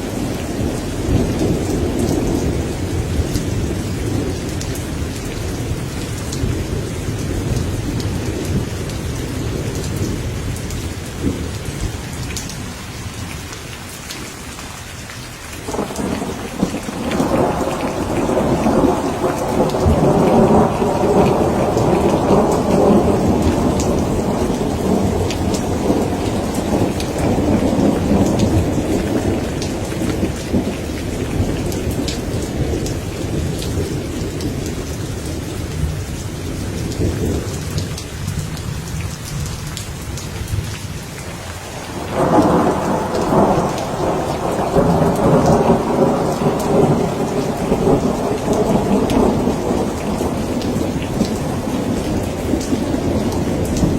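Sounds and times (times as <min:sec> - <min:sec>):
steady rain falling: 0:00.0 - 0:53.9
raindrops ticking: 0:13.2 - 0:35.9, 0:36.8 - 0:53.9
thunder rumbling: 0:15.7 - 0:40.8, 0:41.4 - 0:53.9.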